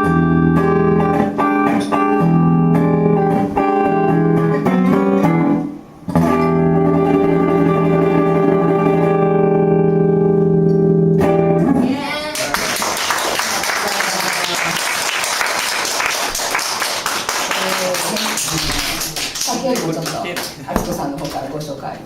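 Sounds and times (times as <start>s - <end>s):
live guitar music: 0.0s - 13.4s.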